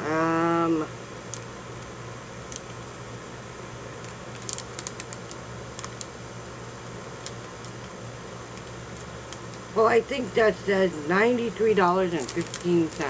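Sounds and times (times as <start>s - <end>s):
low room hum: 0.0s - 13.0s
paper receipt crinkling: 3.9s - 13.0s.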